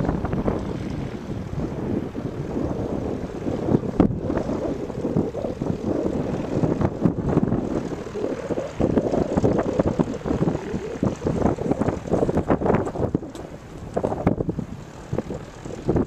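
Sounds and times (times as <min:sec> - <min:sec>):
propeller airplane engine running: 0:00.0 - 0:16.0.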